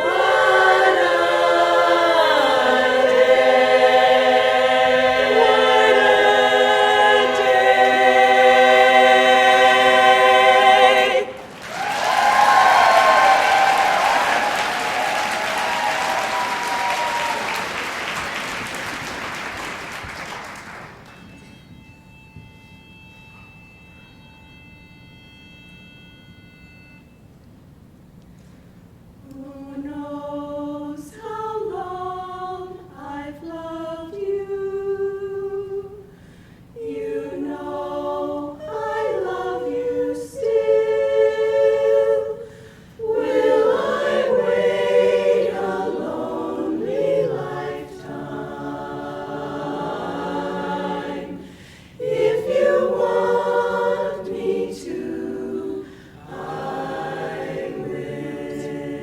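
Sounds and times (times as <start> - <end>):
a cappella chorus singing: 0.0 - 17.8, 29.2 - 59.0
singers breathing: 36.1 - 36.8, 42.4 - 43.0, 51.4 - 52.0, 55.8 - 56.2.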